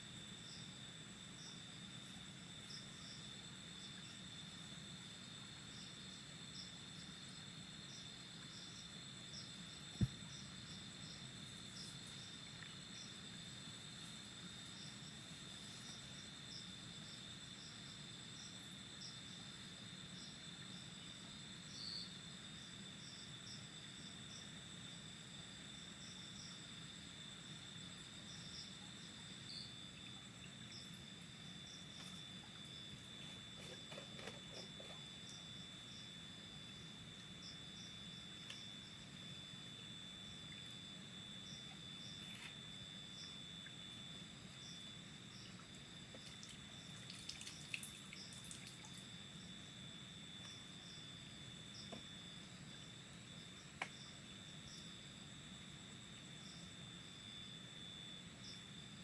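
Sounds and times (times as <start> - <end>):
cricket chirps: 0.0 - 59.0
crickets trilling: 0.0 - 59.0
faint ticks: 38.4 - 38.7.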